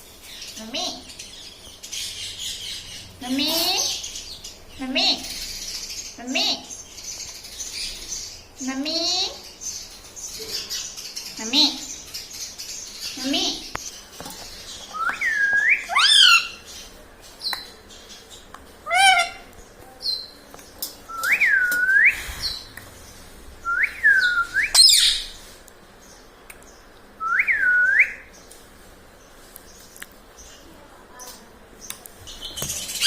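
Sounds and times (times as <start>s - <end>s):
parakeet whistling: 14.9s - 16.5s, 23.6s - 25.3s
parakeet squawk: 15.9s - 16.6s, 18.9s - 19.5s, 24.8s - 25.3s.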